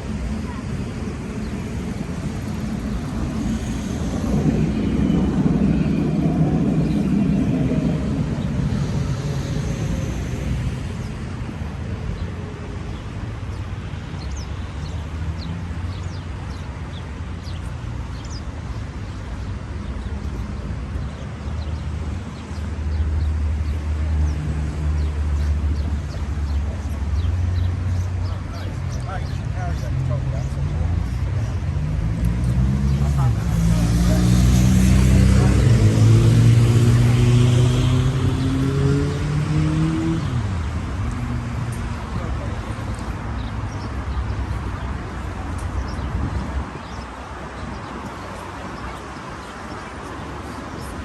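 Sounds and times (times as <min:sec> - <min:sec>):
low rumble of traffic: 0:00.0 - 0:51.0
motor passing: 0:32.0 - 0:40.3.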